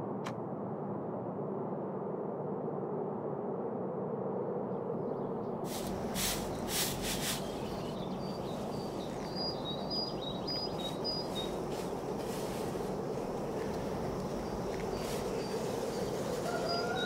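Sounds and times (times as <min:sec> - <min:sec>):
steady low background rumble: 0:00.0 - 0:17.0
hissing rustles: 0:05.6 - 0:09.5, 0:10.4 - 0:17.0.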